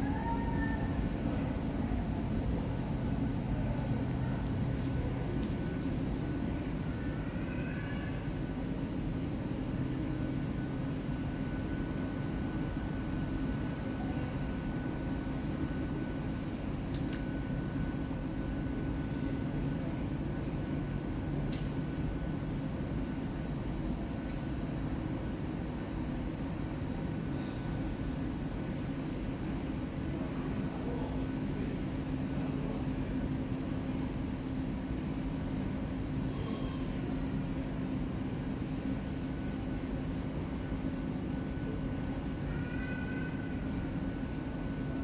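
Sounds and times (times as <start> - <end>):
jet airliner rumble: 0.0 - 45.0
faint click: 16.9 - 17.3, 21.5 - 21.7.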